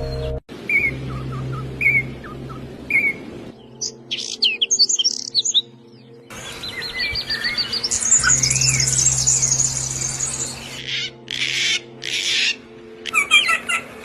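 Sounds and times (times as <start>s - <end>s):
low steady hum: 0.0s - 4.1s
small songbirds chirping: 0.0s - 13.8s.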